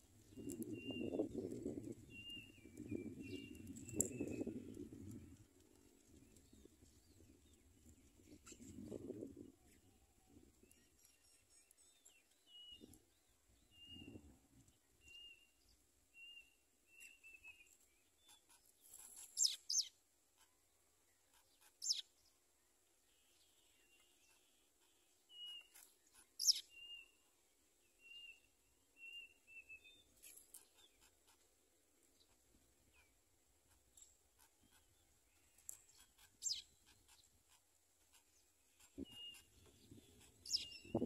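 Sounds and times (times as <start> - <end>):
small bird chirping: 0.0 - 22.4, 23.2 - 27.3, 27.9 - 31.5, 32.1 - 41.0.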